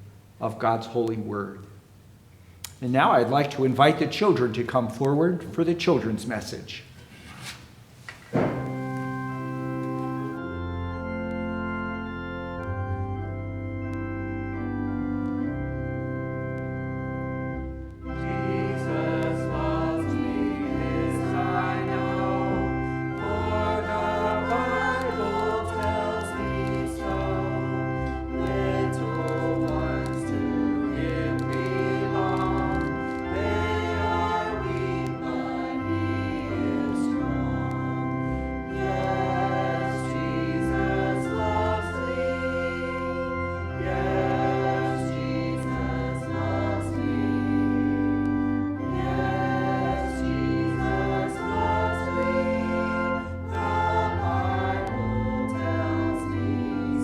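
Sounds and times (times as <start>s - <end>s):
organ playing held chords: 8.4s - 57.0s
voices singing: 18.1s - 57.0s.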